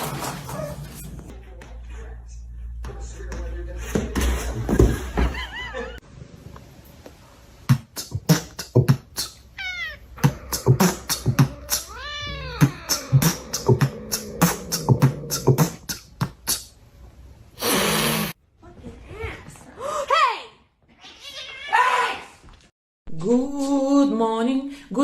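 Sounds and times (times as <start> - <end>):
cat meowing: 9.6 - 10.2, 11.6 - 13.2.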